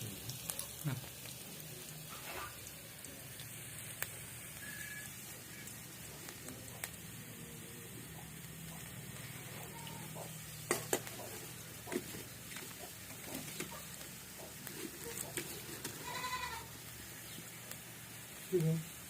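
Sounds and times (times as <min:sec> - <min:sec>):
goat bleating: 0:09.3 - 0:10.3, 0:16.0 - 0:16.7.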